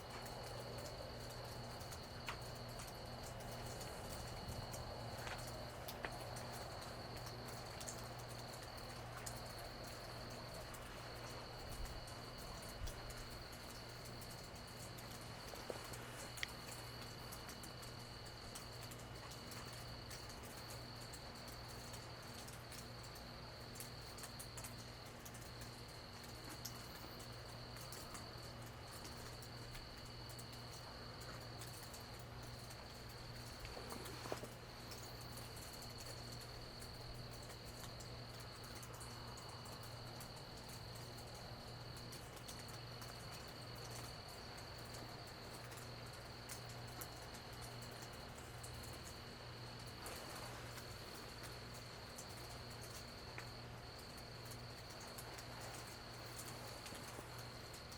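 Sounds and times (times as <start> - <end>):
low steady hum: 0.0 - 24.4
insects trilling: 0.0 - 57.9
rain dripping: 0.0 - 57.9.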